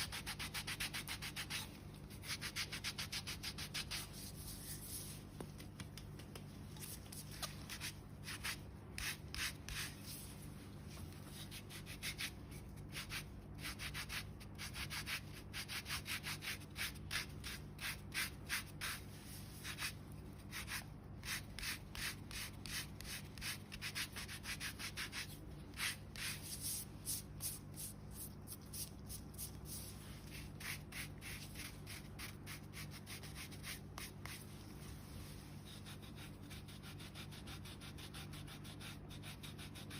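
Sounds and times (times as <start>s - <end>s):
rubbing strokes on skin: 0.5s - 12.3s.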